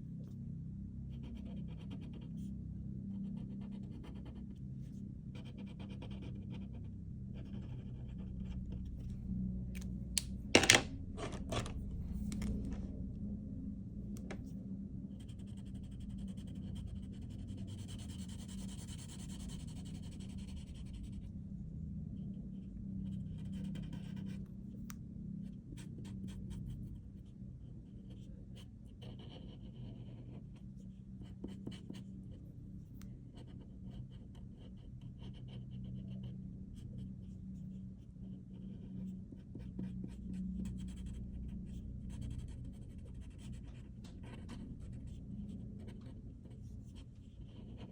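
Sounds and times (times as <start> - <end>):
low steady hum: 0.0 - 47.9
pen scratching on paper: 1.2 - 2.5, 3.3 - 6.8, 7.4 - 8.8, 15.2 - 21.1, 23.4 - 24.4, 28.0 - 30.4, 31.2 - 32.1, 33.4 - 36.2, 38.5 - 47.9.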